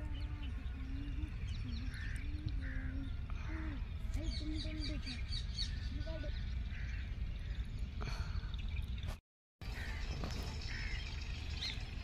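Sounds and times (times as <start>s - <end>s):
low wind rumble: 0.0s - 12.0s.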